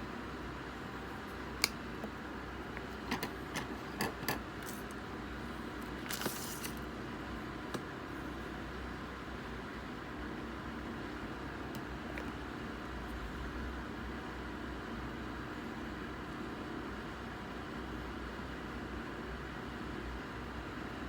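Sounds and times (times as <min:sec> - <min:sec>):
steady low hum: 0:00.0 - 0:14.6
cards clicking and tapping: 0:01.6 - 0:05.0.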